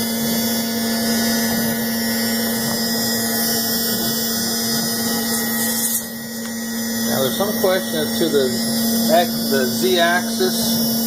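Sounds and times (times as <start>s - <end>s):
high whines: 0.0s - 11.0s
router spindle humming: 0.0s - 11.0s.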